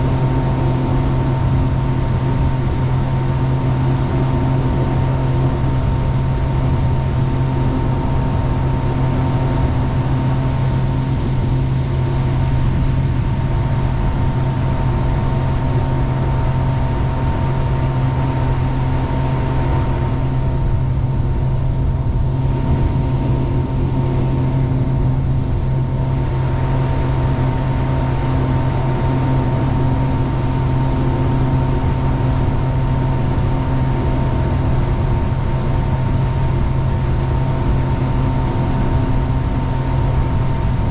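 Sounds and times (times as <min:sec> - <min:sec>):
boat engine droning: 0:00.0 - 0:40.9.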